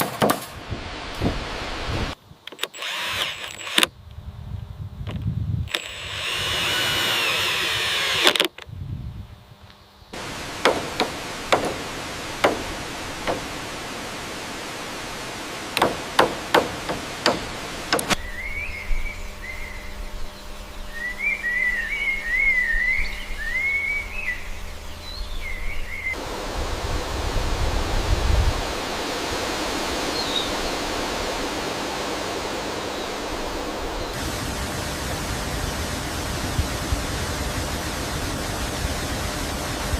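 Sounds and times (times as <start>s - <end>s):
sharp wooden knocks: 0.0s - 0.6s, 10.6s - 13.6s, 15.8s - 18.2s
waterfall rushing: 10.2s - 18.2s, 26.2s - 39.9s.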